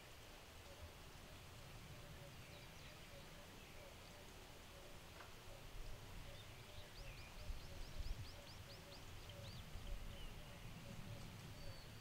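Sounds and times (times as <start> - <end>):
faint bird calls: 1.9 - 12.0
songbird chirping rapidly: 6.2 - 12.0.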